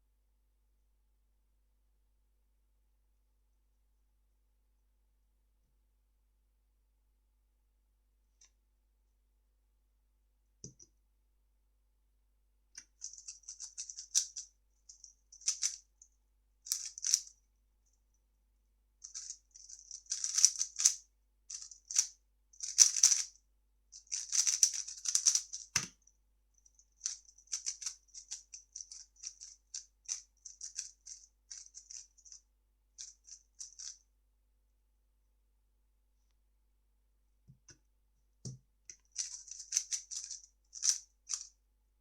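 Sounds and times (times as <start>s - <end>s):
puzzle cube clicking and rattling: 12.8s - 15.9s, 16.7s - 17.3s, 19.1s - 23.3s, 24.0s - 26.0s, 26.9s - 32.4s, 33.0s - 34.0s, 39.0s - 41.5s.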